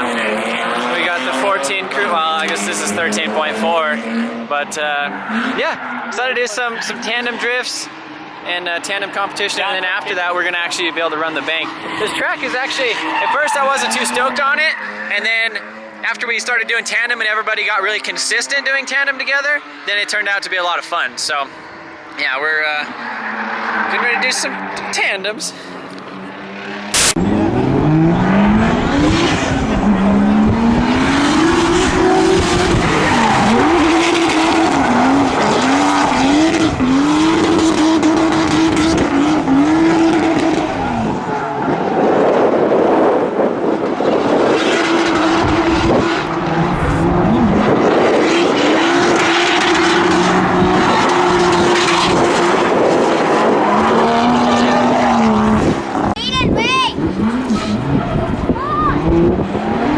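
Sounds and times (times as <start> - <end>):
car engine revving hard: 0.0 - 16.1, 26.1 - 56.2, 56.8 - 59.9
tire squeal: 5.1 - 16.1, 22.8 - 25.1, 27.8 - 43.2, 44.0 - 59.9.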